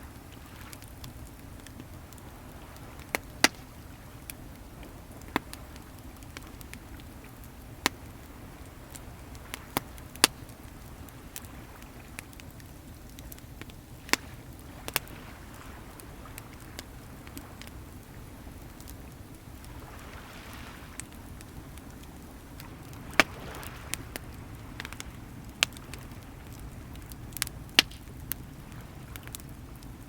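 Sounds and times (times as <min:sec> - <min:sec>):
bonfire crackling and popping: 0:00.0 - 0:30.0
sea waves rushing: 0:13.9 - 0:30.0.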